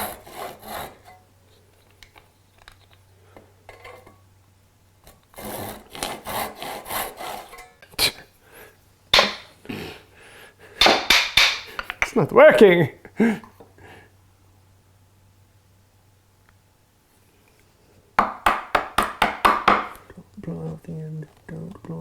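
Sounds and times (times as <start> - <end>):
hand saw cutting wood: 0.0 - 1.2, 5.3 - 7.6.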